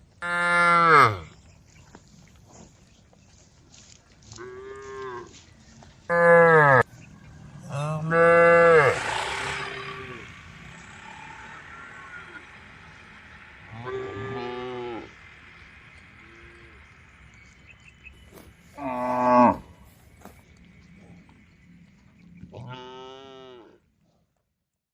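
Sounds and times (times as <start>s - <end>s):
cows mooing: 0.2s - 1.3s, 6.1s - 15.4s, 18.8s - 19.8s, 22.5s - 23.8s.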